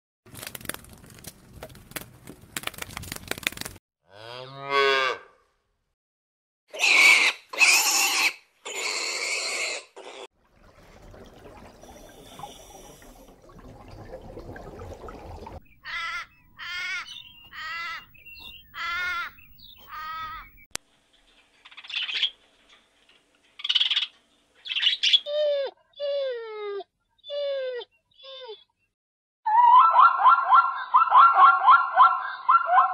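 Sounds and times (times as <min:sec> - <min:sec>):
harsh squeal-like cries: 0:06.8 - 0:10.3
short quavering bleating calls: 0:18.8 - 0:20.5.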